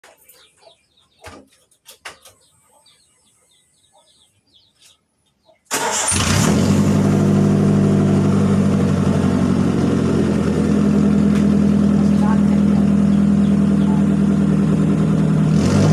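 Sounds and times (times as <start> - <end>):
bird chirps: 0.0 - 5.7, 12.0 - 14.8
engine running through loud exhaust: 6.0 - 15.9.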